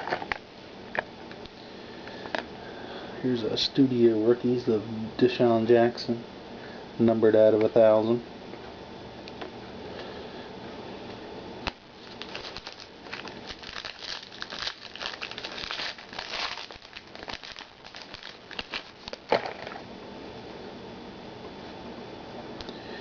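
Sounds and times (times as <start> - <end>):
card pack crinkling and rustling: 12.0 - 19.8.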